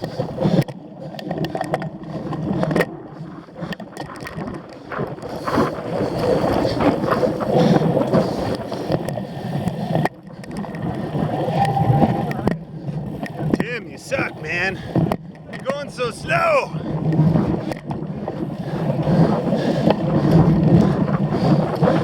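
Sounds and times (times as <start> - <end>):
bike tyres rumbling on rough ground: 16.8 - 22.0.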